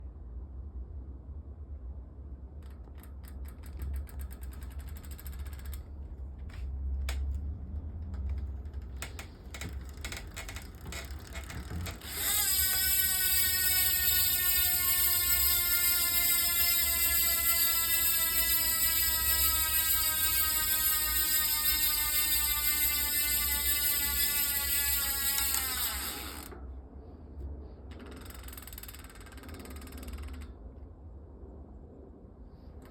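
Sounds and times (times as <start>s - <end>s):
fast mechanical ratchet clicking: 2.6s - 6.4s, 8.1s - 26.6s, 27.9s - 30.6s
rattling buzz: 8.1s - 26.6s
small motor whine: 11.9s - 26.6s.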